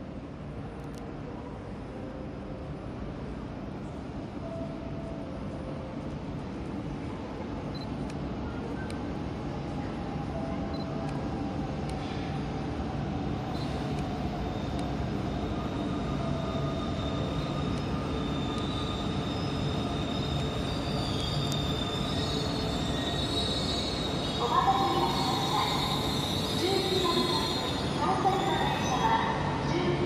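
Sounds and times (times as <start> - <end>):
high squeal of braking train: 12.0 - 29.9.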